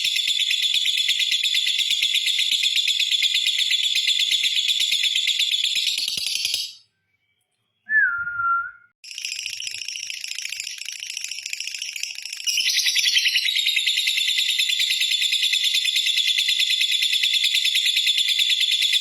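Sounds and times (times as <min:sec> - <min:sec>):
short whistled note: 0:07.9 - 0:08.9.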